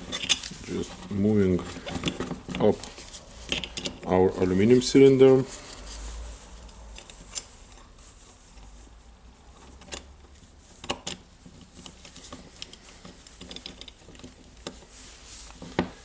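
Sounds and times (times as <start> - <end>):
small metal parts clicking and knocking: 0.0 - 0.6, 3.4 - 4.1, 10.8 - 14.8.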